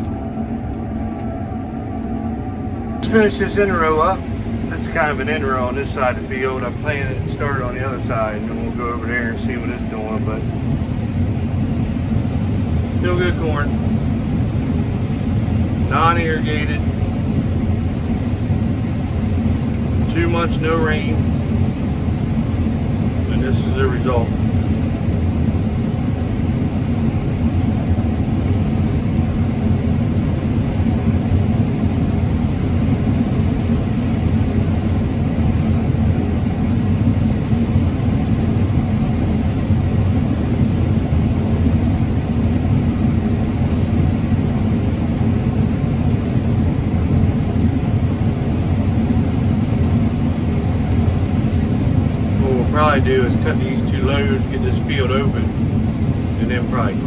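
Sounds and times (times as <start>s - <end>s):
combine harvester engine droning: 0.0s - 57.0s.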